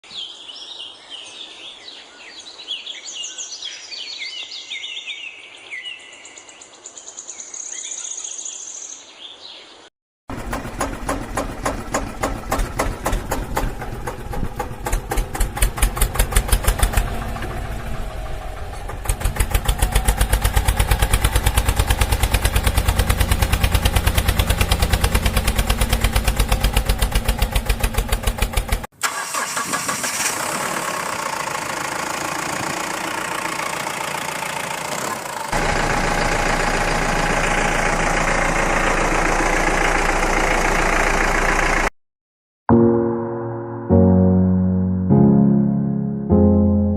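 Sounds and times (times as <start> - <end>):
tractor engine chugging: 10.3 - 41.9.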